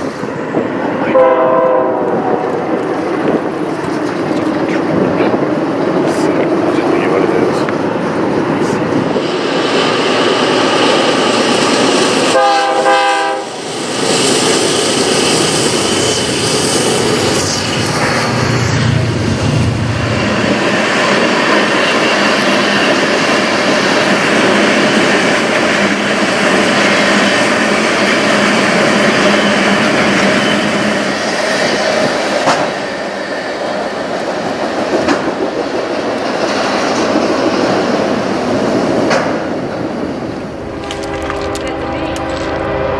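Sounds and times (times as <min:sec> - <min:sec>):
train wheels on rails: 0:00.0 - 0:42.9
multi-tone train horn blast: 0:01.1 - 0:02.4, 0:12.3 - 0:13.6, 0:40.7 - 0:42.9.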